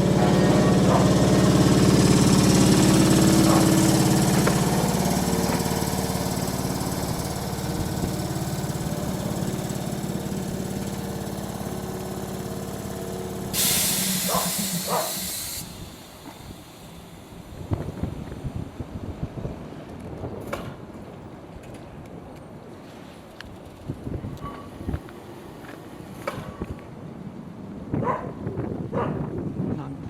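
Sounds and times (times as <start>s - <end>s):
train engine rumbling: 0.0s - 30.0s
sudden hiss: 13.4s - 18.1s.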